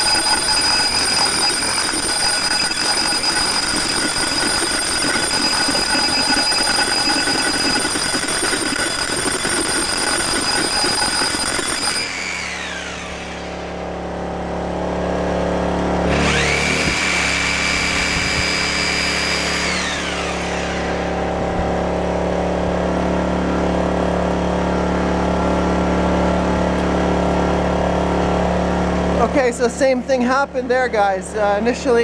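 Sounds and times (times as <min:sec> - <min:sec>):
rotary hammer drill whining: 0:00.0 - 0:14.6, 0:16.0 - 0:22.4
generator engine running: 0:00.0 - 0:32.0.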